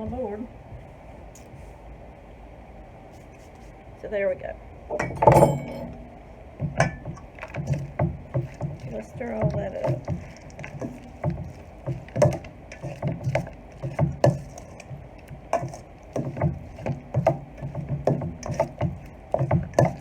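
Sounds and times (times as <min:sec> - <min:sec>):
spoon knocking against bowl: 0:05.0 - 0:06.0
spoon stirring thick salad: 0:05.0 - 0:20.0.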